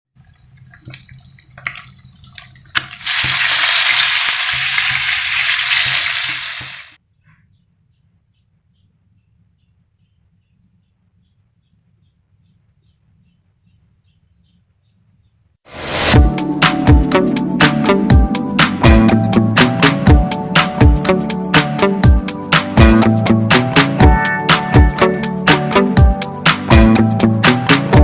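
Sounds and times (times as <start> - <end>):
chicken sizzling in hot oil: 0.2 - 7.0.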